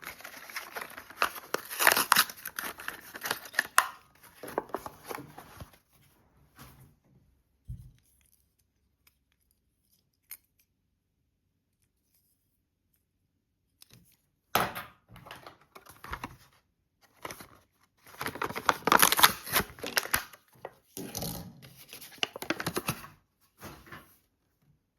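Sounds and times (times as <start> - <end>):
packaging tearing and crinkling: 0.0 - 4.1, 18.0 - 20.4.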